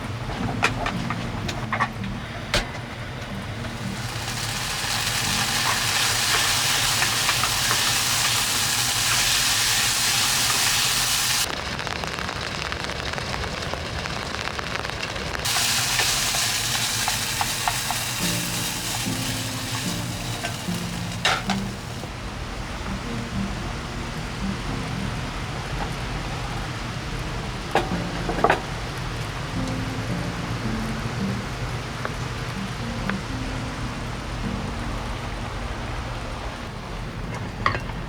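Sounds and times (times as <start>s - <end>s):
low engine drone: 0.0s - 11.5s
heavy rain hissing on vehicle: 3.5s - 22.1s.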